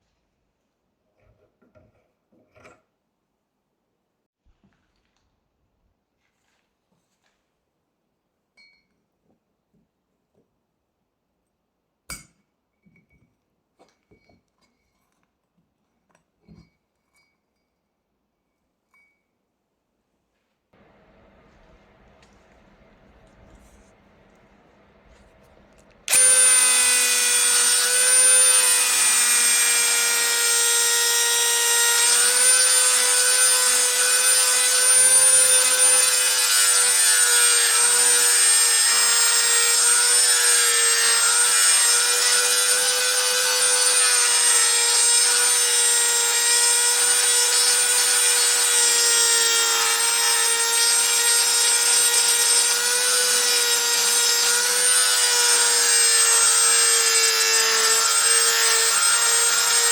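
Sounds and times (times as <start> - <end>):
power tool motor whining: 26.0 - 59.9.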